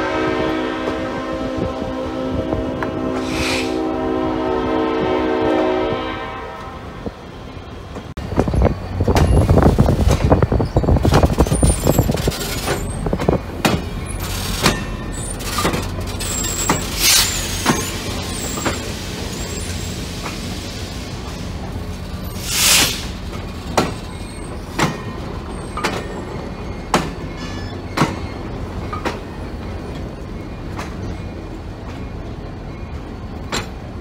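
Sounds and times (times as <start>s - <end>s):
locomotive horn: 0.0s - 7.2s
locomotive rumbling past: 0.0s - 34.0s
wheels clicking over rail joints: 7.9s - 20.5s, 23.1s - 32.2s
high wheel squeals: 8.5s - 33.5s.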